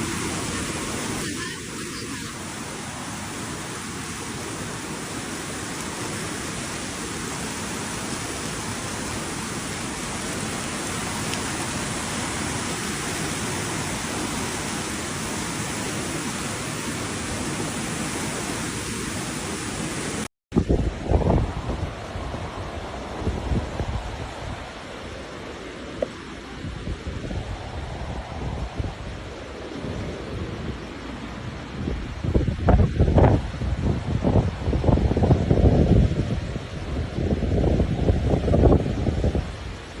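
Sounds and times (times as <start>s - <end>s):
pouring water hissing: 0.0s - 20.3s.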